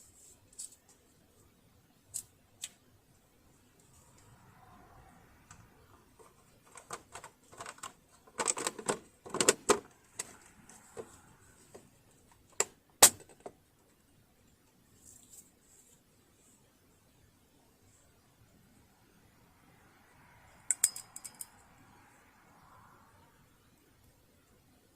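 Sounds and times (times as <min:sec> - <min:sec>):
metal parts and tools clattering: 0:06.2 - 0:11.2, 0:20.7 - 0:21.6.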